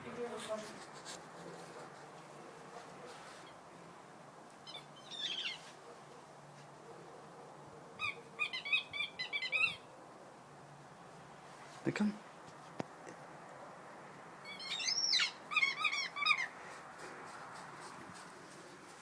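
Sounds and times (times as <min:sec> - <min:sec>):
squeaky toy squeaking: 0:14.5 - 0:16.5.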